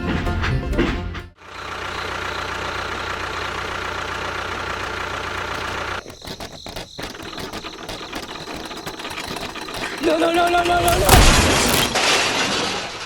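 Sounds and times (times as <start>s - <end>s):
motor humming: 1.4s - 12.0s
rapid irregular ticking chatter: 1.6s - 11.1s.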